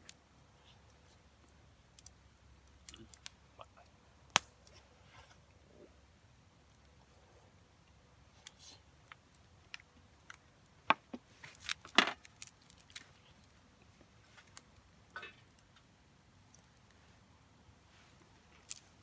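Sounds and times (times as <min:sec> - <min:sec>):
wood fire crackling and popping: 0:00.0 - 0:04.9, 0:06.0 - 0:19.0.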